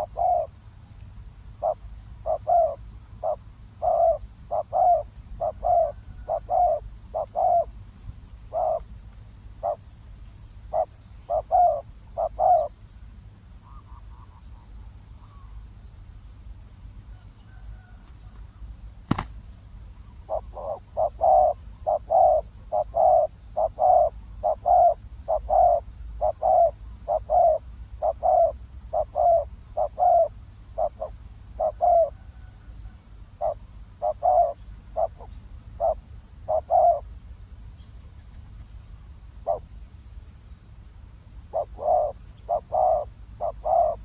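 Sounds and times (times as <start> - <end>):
dove cooing: 0.0 - 0.6, 1.6 - 7.8, 8.5 - 8.9, 9.6 - 9.8, 10.7 - 12.8, 20.1 - 37.1, 39.4 - 39.8, 41.5 - 44.0
small bird chirping: 8.4 - 10.0, 19.1 - 40.3, 41.2 - 44.0.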